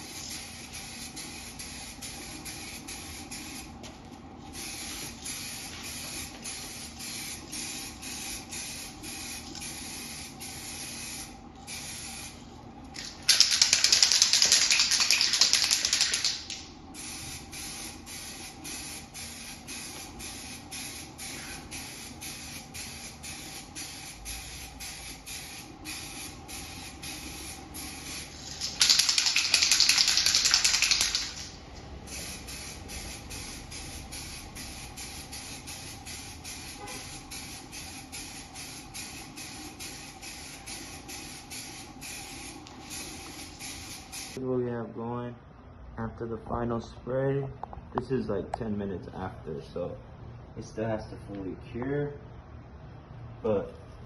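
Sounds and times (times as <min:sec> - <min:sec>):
aerosol can spraying: 0:00.0 - 0:03.8, 0:04.5 - 0:12.4, 0:13.0 - 0:31.5, 0:32.1 - 0:44.4.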